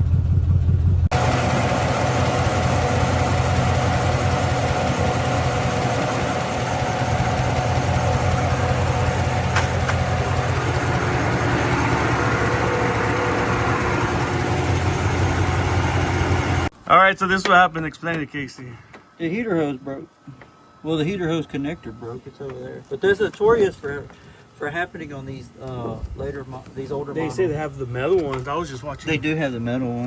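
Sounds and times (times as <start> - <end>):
car engine idling rough: 0.0 - 16.7.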